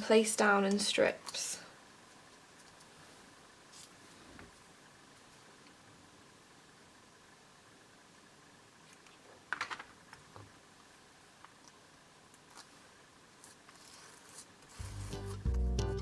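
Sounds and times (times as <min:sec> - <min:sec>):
background music: 0:14.8 - 0:16.0.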